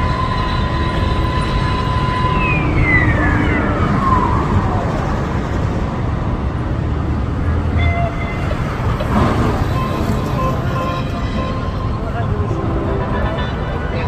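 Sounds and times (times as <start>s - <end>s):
siren winding down: 0.0s - 5.4s
city street traffic: 0.0s - 14.0s.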